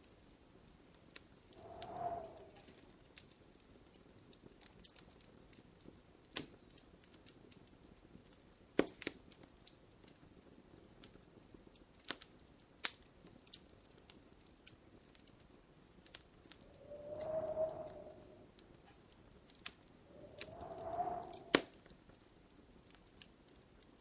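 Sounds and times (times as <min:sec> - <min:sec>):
wood fire crackling: 0:00.7 - 0:24.0
wood fire popping: 0:19.5 - 0:21.8.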